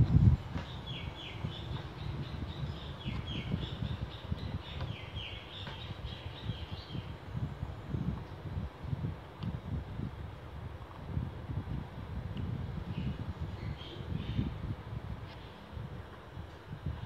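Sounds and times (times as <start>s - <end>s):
microphone handling rumble: 0.0s - 17.0s
bird chirping: 0.6s - 7.1s.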